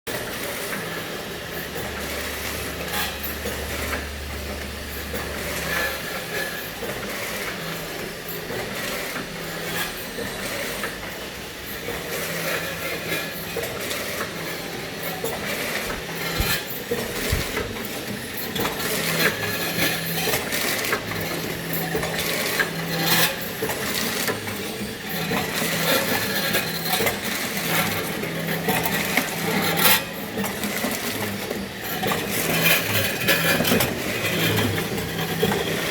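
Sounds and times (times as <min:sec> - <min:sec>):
machine clattering and rattling: 0:11.8 - 0:35.9.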